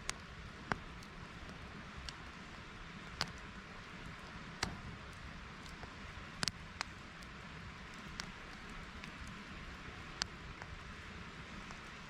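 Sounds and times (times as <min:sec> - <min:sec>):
campfire crackling: 0:00.0 - 0:12.0
steady soft hiss: 0:00.0 - 0:12.0
sharp pops: 0:04.6 - 0:05.1.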